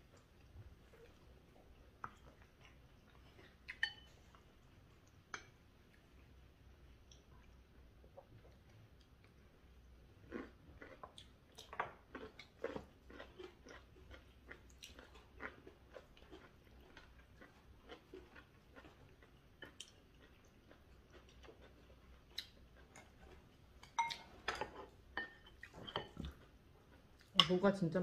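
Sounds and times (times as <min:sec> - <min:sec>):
people chewing: 0:00.0 - 0:27.4
chopsticks and spoons clicking on dishes: 0:03.7 - 0:04.1.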